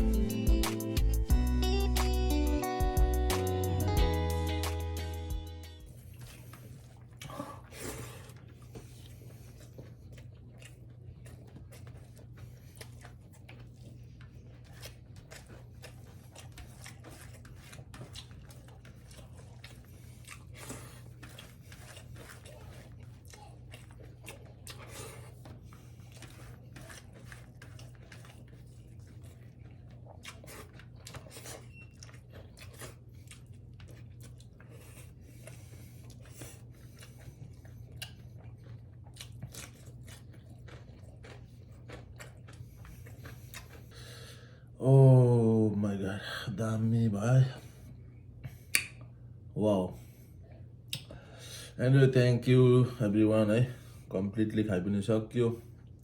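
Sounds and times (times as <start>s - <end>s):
person chewing and crunching food: 0.0s - 44.8s.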